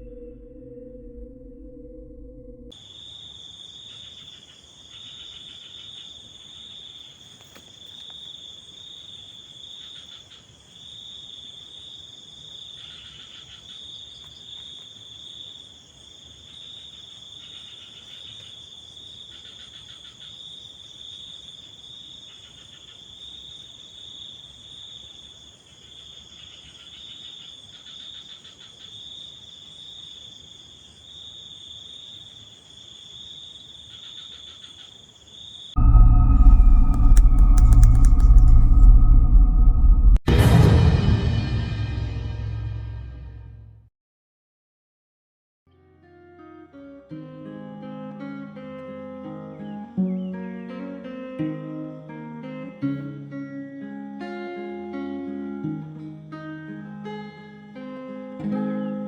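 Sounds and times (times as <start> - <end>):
pulsed insect calls: 0.0 - 39.5
crickets trilling: 2.7 - 38.3.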